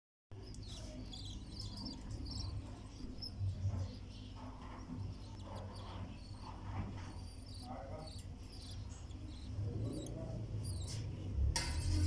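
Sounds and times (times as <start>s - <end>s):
low steady hum: 0.3s - 12.0s
chicks squeaking: 0.4s - 12.0s.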